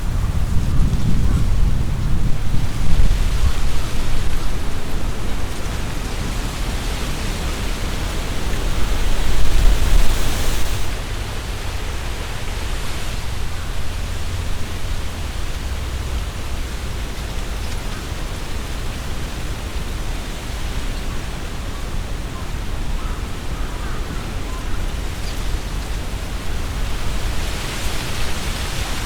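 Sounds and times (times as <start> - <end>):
leaves rustling: 0.0 - 22.2, 24.6 - 29.0
wind gusting through trees: 0.0 - 29.0
wind rumble on microphone: 0.0 - 29.0.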